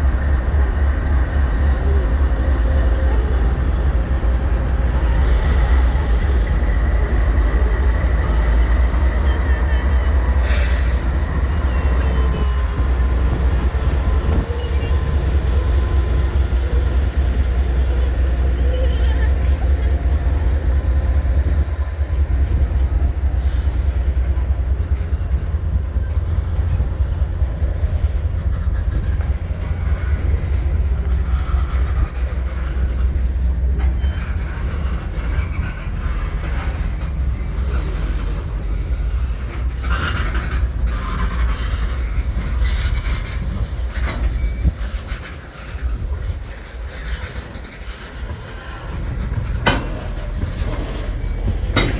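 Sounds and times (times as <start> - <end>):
freight train rumbling on rails: 0.0 - 51.9
train wheel clatter: 0.0 - 51.9.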